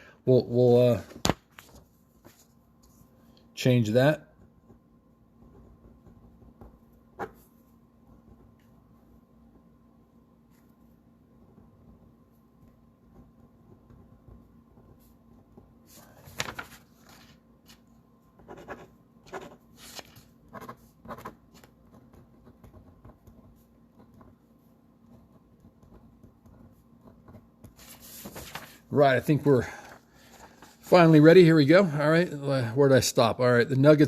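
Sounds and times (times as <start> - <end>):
pen writing on paper: 18.4 - 19.6, 20.5 - 24.4, 25.0 - 27.8.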